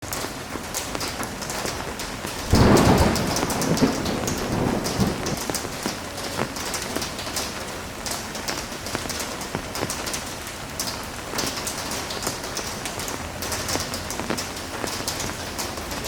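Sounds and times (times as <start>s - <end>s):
heavy rain falling: 0.0s - 16.0s
thunder clap rumbling: 1.4s - 7.6s.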